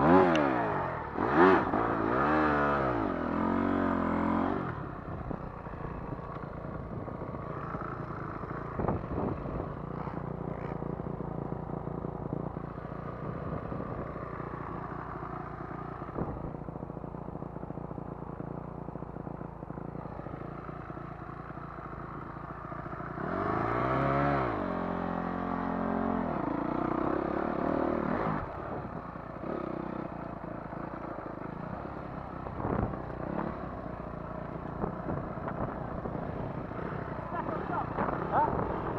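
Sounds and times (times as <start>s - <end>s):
dirt bike engine revving: 0.0s - 6.4s, 23.0s - 30.2s, 34.6s - 38.9s.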